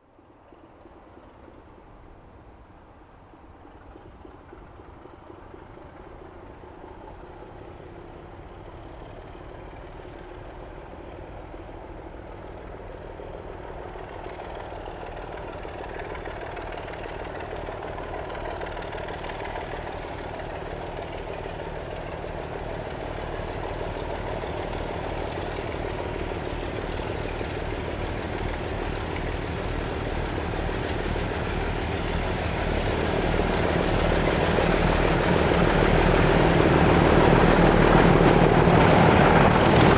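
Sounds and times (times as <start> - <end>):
diesel locomotive engine: 0.0 - 39.9.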